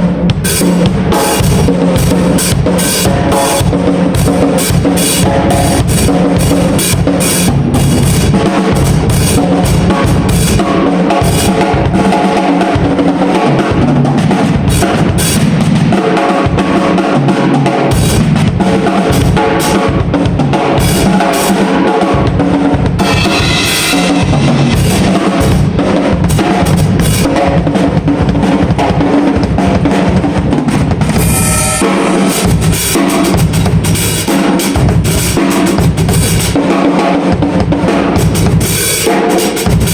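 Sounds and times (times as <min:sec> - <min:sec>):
drum kit played hard: 0:00.0 - 0:39.9
cymbal crash: 0:23.0 - 0:27.3, 0:31.1 - 0:36.4
pitched notes: 0:31.2 - 0:33.4.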